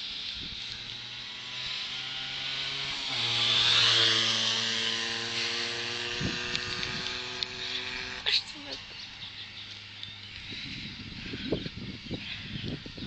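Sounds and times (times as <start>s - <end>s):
motorcycle engine passing by: 0.0s - 12.1s.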